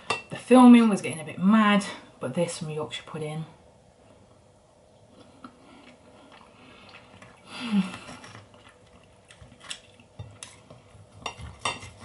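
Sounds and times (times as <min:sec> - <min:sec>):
quiet chewing: 0:05.0 - 0:12.0.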